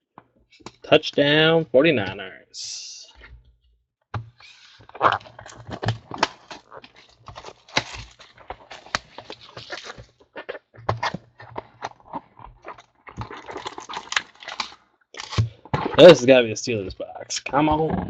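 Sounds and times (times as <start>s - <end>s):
packs being torn open: 4.6s - 16.1s.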